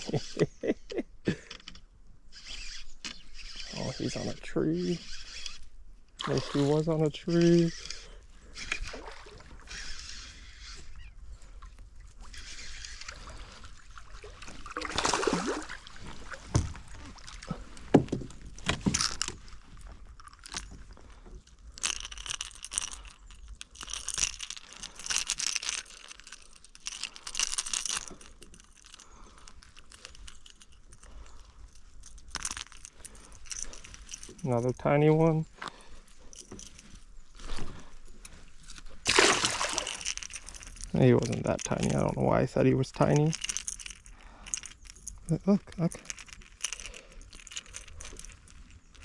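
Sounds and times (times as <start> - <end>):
metal tackle jangling: 1.3 - 9.0, 15.9 - 49.0.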